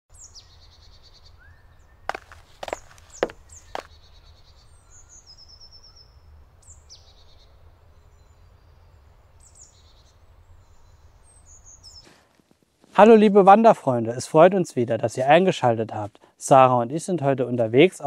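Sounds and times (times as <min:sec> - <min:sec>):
birds chirping and trilling: 0:00.1 - 0:12.1.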